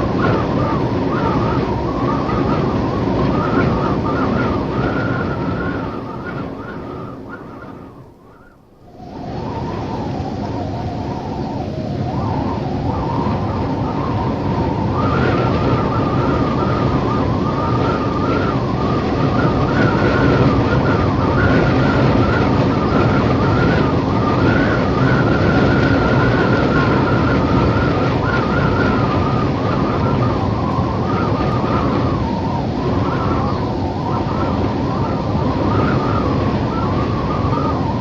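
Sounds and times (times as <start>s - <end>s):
howling wind: 0.0s - 38.0s.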